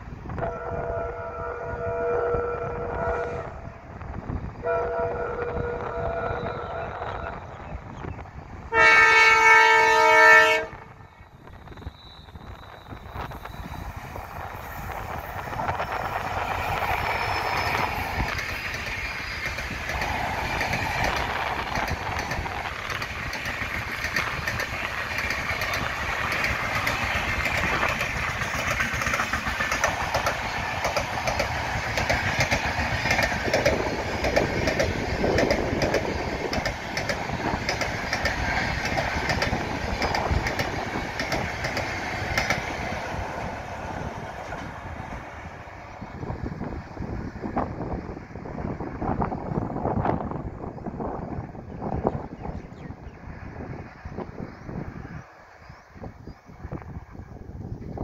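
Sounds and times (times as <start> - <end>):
train rumbling past: 0.0 - 58.0
wheels clacking over rail joints: 16.5 - 45.3.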